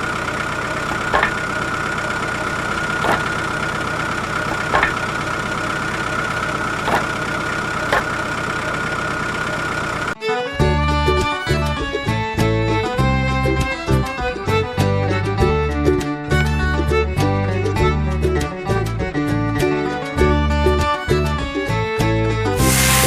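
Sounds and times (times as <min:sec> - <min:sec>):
sharp knocks: 0:00.9 - 0:01.5, 0:03.0 - 0:03.4, 0:04.5 - 0:05.1, 0:06.8 - 0:07.2
music: 0:10.2 - 0:23.0
small motor whining: 0:22.6 - 0:23.0.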